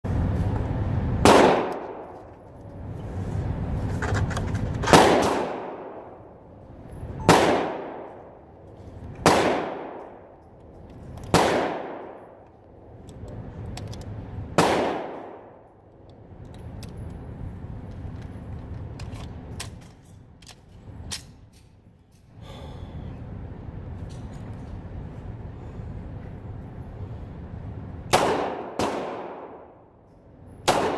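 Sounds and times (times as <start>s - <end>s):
pistol shots with echo: 1.2s - 2.2s, 4.9s - 6.3s, 7.2s - 8.4s, 9.2s - 10.3s, 11.3s - 12.4s, 14.6s - 15.6s, 28.1s - 29.8s, 30.6s - 30.9s.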